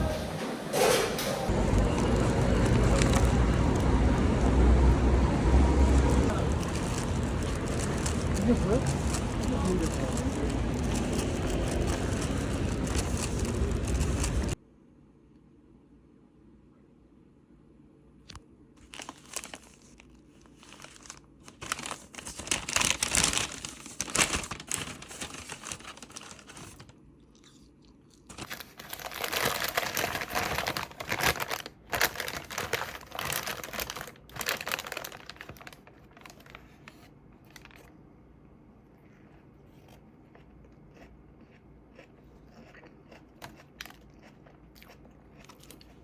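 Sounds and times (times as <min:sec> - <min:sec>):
crinkling and rustling: 0:00.0 - 0:14.6, 0:18.8 - 0:27.0, 0:28.2 - 0:37.9.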